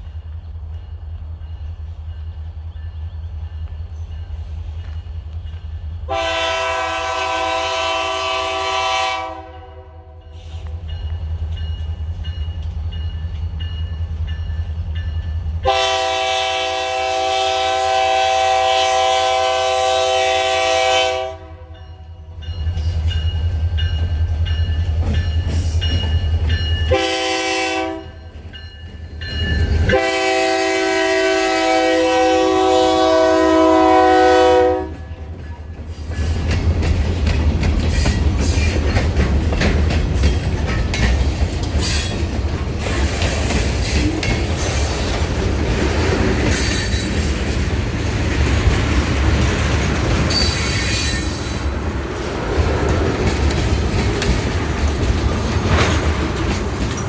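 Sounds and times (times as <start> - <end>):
locomotive air horn blasts: 6.1 - 10.5, 15.6 - 21.8, 26.9 - 28.2, 29.9 - 35.1
locomotive rumble: 22.4 - 57.0.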